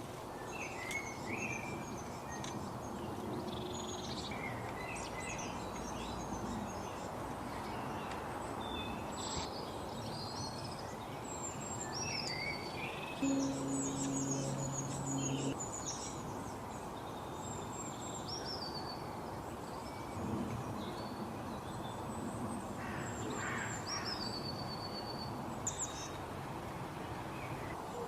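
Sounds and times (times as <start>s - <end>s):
outdoor background hiss: 0.0s - 28.0s
wild birds chirping: 0.4s - 16.0s.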